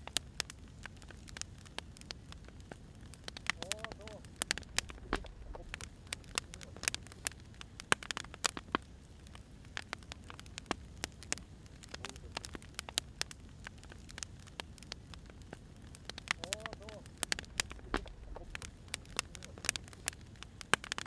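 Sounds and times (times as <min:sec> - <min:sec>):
firewood crackling and popping: 0:00.0 - 0:21.0
low steady rumble: 0:04.2 - 0:07.7, 0:15.0 - 0:20.4.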